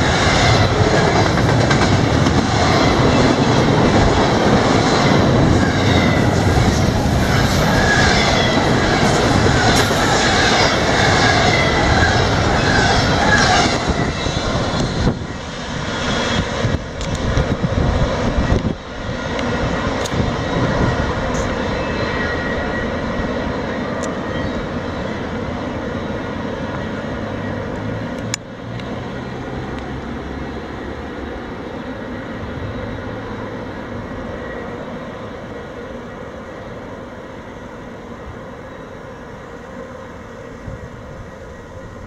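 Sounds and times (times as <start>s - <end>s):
freight train rolling past: 0.0s - 42.0s
wheel squeal on rails: 5.1s - 17.2s, 18.3s - 28.0s.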